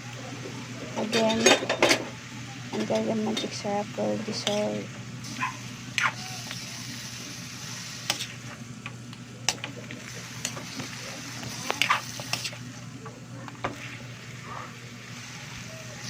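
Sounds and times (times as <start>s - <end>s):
chicken sizzling in a pot: 0.0s - 16.0s.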